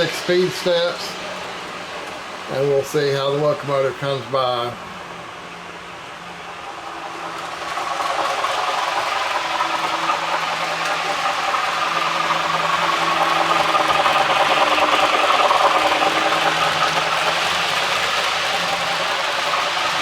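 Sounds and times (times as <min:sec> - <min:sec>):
model train wheels rattling on track: 0:00.0 - 0:20.0.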